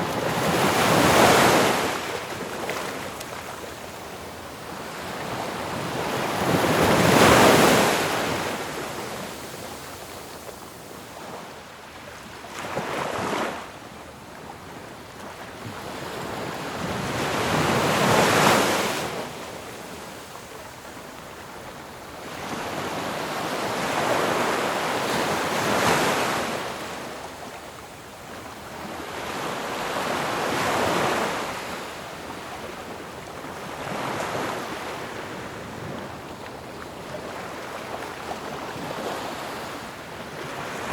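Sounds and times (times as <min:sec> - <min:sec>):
ocean waves breaking: 0:00.0 - 0:03.8, 0:37.0 - 0:40.9.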